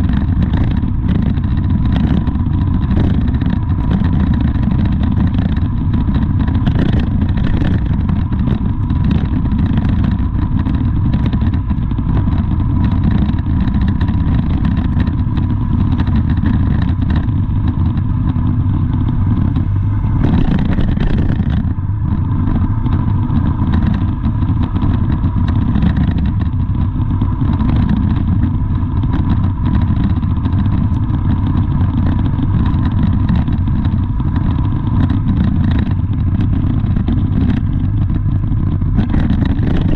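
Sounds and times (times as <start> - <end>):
faint steady whine: 0.0 - 39.9
vehicle engine rumbling: 0.0 - 39.9.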